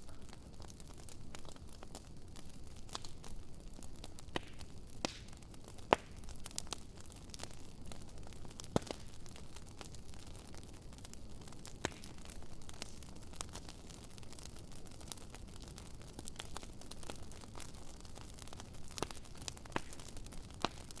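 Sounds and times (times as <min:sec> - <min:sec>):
low fire hiss: 0:00.0 - 0:21.0
wood fire crackling: 0:00.0 - 0:21.0
loud fire pops: 0:03.8 - 0:07.6, 0:08.2 - 0:10.6, 0:11.6 - 0:13.5, 0:17.5 - 0:21.0.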